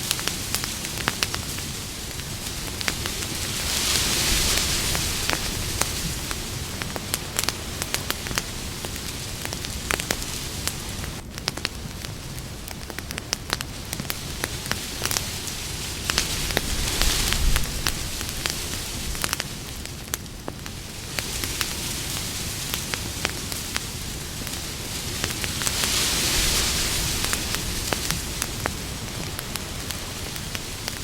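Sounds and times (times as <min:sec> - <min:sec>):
campfire crackling and hissing: 0:00.0 - 0:31.0.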